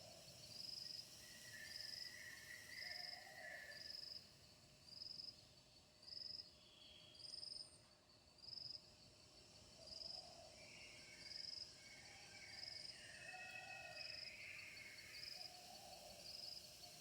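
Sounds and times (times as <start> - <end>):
high insect chirp: 8.5 - 17.0.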